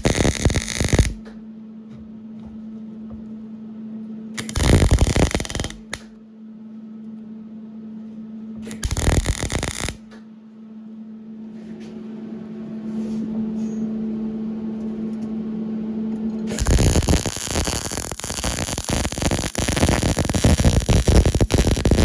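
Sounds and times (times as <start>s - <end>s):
welding crackling: 0.0s - 1.2s, 4.4s - 6.1s, 8.7s - 10.1s, 16.5s - 22.0s
steady low hum: 0.0s - 22.0s.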